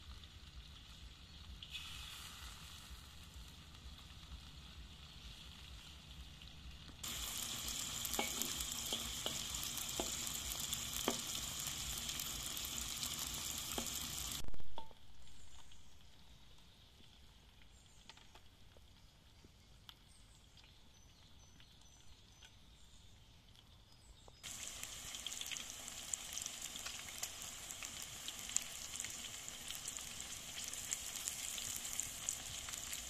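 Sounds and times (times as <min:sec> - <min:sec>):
meat sizzling in a wok: 0:00.0 - 0:17.4, 0:24.4 - 0:33.0.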